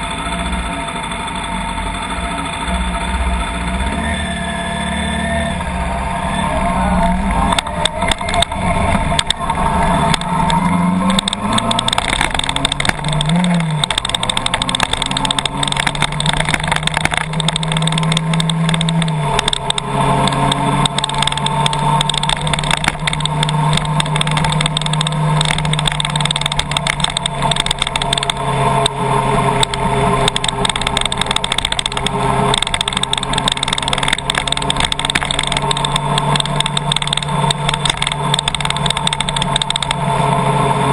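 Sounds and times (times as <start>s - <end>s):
car engine hum: 0.0s - 40.9s
heavy rain on car: 11.0s - 28.3s.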